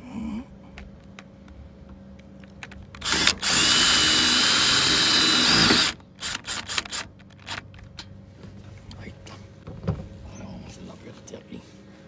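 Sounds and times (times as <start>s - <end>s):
handheld power tool running: 3.0s - 7.6s.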